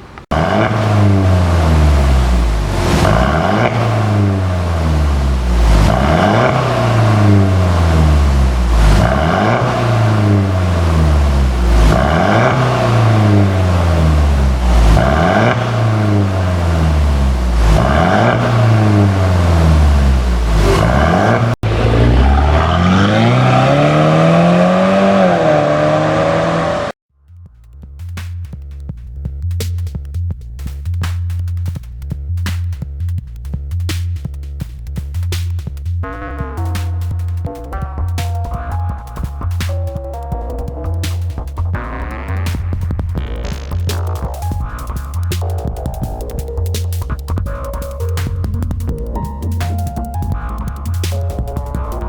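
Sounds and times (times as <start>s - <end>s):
car engine revving: 0.3s - 27.0s.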